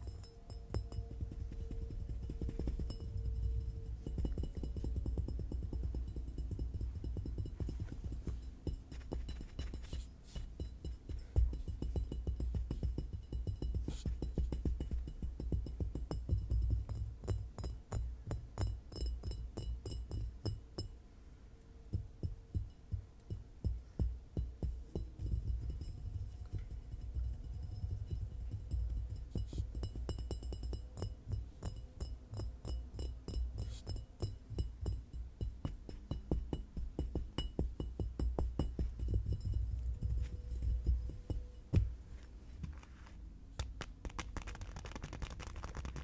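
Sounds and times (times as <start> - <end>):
fingertip and nail tapping: 43.6 - 46.0.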